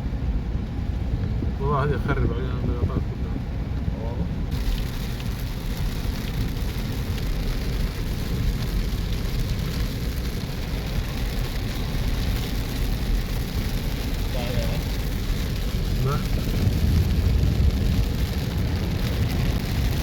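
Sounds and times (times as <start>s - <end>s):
low rumble: 0.0s - 20.0s
heavy rain pouring: 4.4s - 20.0s.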